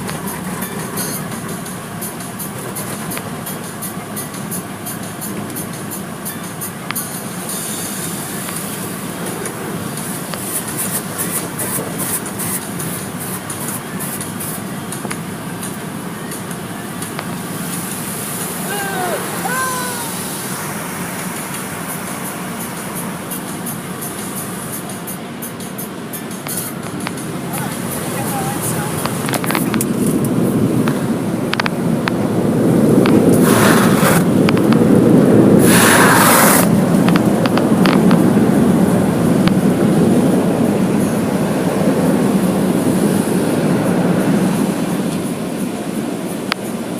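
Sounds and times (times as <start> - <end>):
car wash equipment rumbling: 0.0 - 46.9
water spray hissing: 7.0 - 46.9
hissing spray bursts: 17.3 - 25.1, 33.2 - 37.1.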